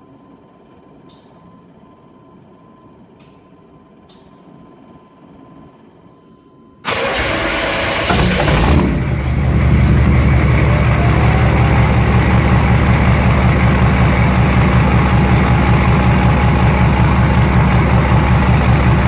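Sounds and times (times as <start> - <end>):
diesel truck engine idling: 8.0 - 19.0.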